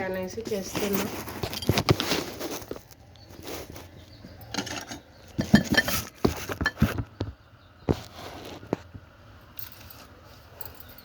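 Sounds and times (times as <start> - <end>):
metal spoon scraping a pan: 4.4 - 7.0.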